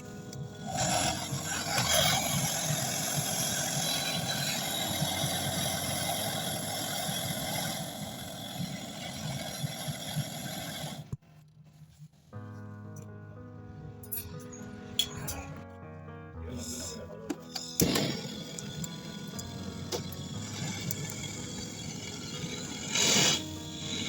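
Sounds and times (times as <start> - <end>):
brazing torch flame hissing: 0.0 - 11.2, 17.6 - 24.0.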